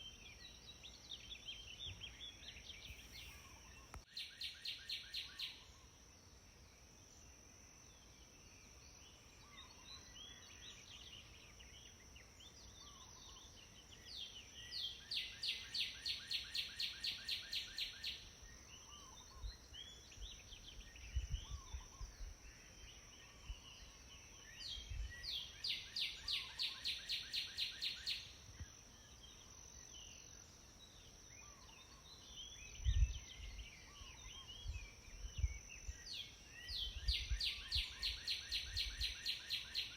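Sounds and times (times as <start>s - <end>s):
short bird chirps: 1.8s - 5.8s
steady high hiss: 2.6s - 4.1s.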